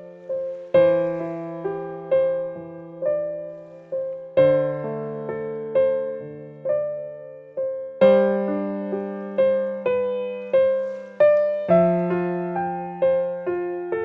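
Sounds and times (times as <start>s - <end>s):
slow gentle piano music: 0.0s - 14.0s.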